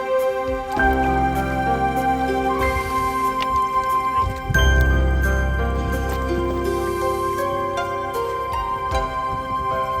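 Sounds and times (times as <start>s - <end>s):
soft new-age music: 0.0s - 10.0s.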